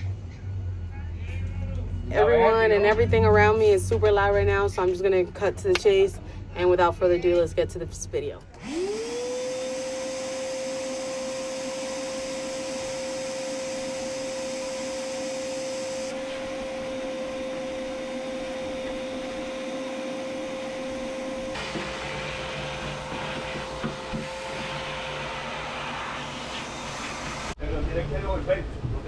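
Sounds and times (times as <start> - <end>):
vacuum cleaner whining: 8.1 - 27.6.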